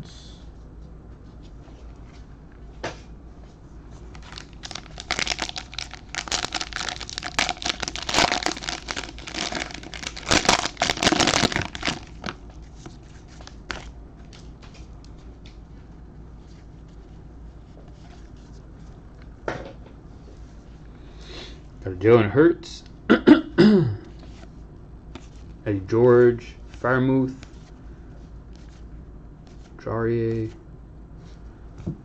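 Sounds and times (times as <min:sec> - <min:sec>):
card pack wrapper crinkling: 0:04.2 - 0:13.9.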